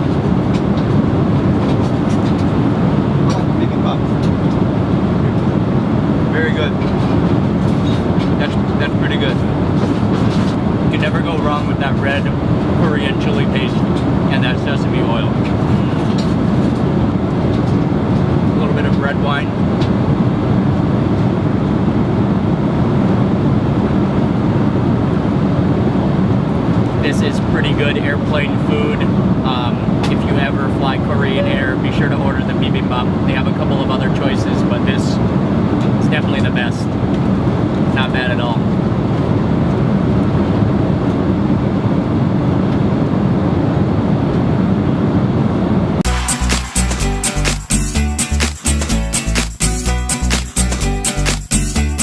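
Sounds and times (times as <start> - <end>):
airliner cabin engine rumble: 0.0 - 46.3
music with strong beat: 46.0 - 52.0.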